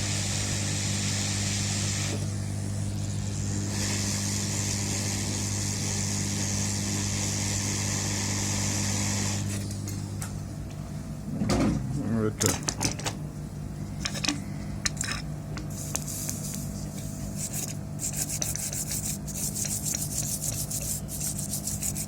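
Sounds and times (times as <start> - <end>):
low hum of rework station: 0.0 - 22.0.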